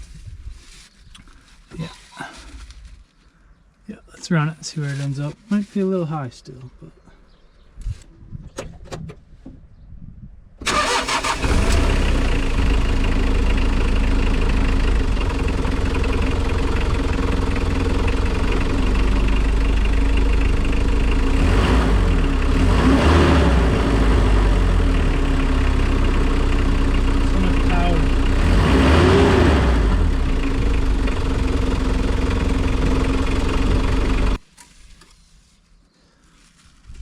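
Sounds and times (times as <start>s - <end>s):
van engine starting and idling: 10.6s - 34.4s.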